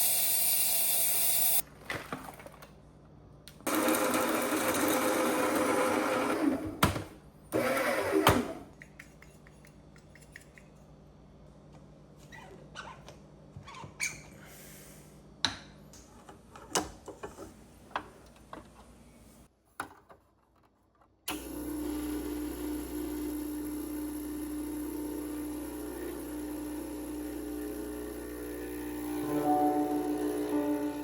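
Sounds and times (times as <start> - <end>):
espresso pump buzzing: 0.0 - 1.6, 3.7 - 6.5, 21.3 - 31.0.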